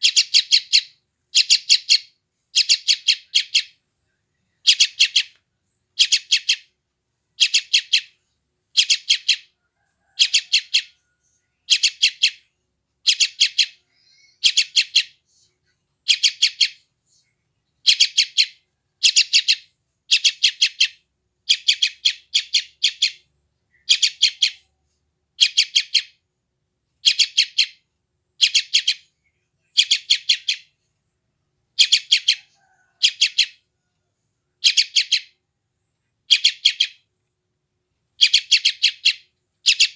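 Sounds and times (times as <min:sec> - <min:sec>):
bird chick calling: 0:00.0 - 0:03.8, 0:04.6 - 0:05.4, 0:06.0 - 0:06.8, 0:07.4 - 0:15.2, 0:16.0 - 0:16.9, 0:17.8 - 0:24.8, 0:25.4 - 0:26.2, 0:27.0 - 0:27.8, 0:28.4 - 0:30.8, 0:31.8 - 0:34.0, 0:34.6 - 0:35.4, 0:36.3 - 0:37.1, 0:38.2 - 0:39.9.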